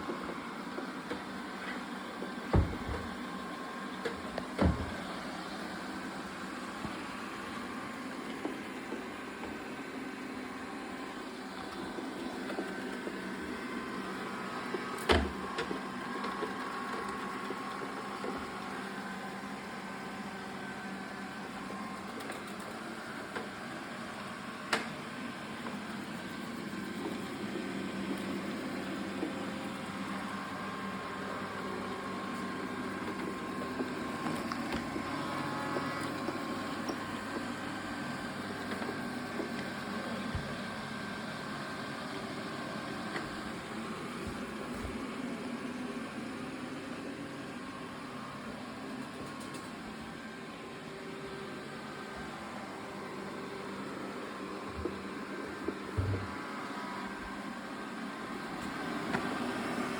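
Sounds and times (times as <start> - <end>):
robot vacuum suction motor: 51.9 - 57.4.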